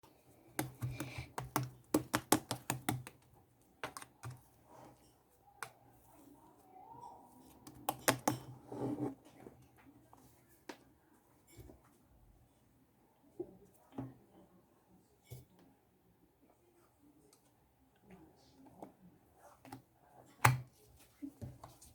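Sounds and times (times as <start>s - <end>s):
sharp clicks and taps: 0.6s - 3.2s.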